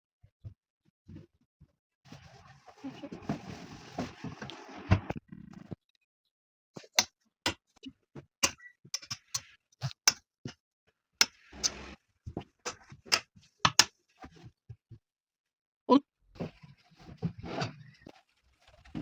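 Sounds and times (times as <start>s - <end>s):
household objects clicking and knocking: 8.4s - 10.2s, 11.2s - 14.6s.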